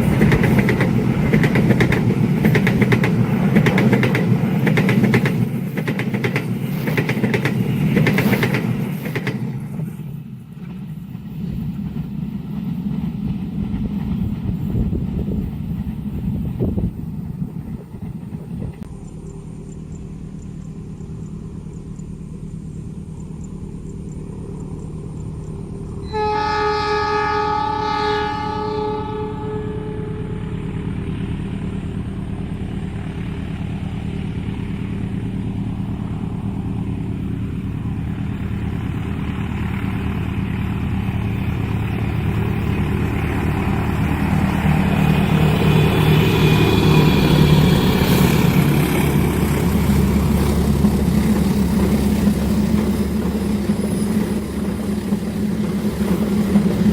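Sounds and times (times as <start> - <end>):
diesel locomotive engine drone: 0.0 - 56.9
train horn blast: 26.0 - 31.0.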